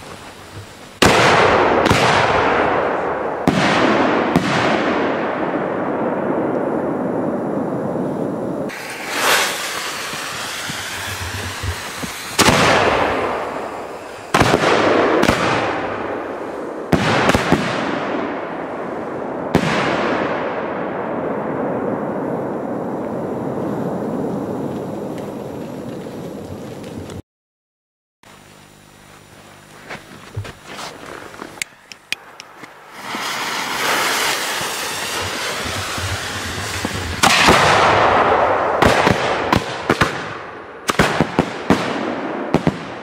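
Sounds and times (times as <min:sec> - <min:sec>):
fireworks bangs with echo: 0:00.0 - 0:27.0, 0:32.2 - 0:43.0
rushing hiss: 0:08.7 - 0:14.9, 0:32.1 - 0:38.0.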